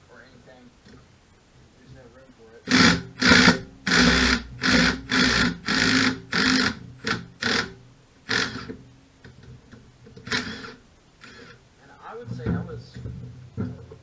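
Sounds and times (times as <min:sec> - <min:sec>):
hand ratchet clicking: 0:02.7 - 0:08.8, 0:10.2 - 0:11.6.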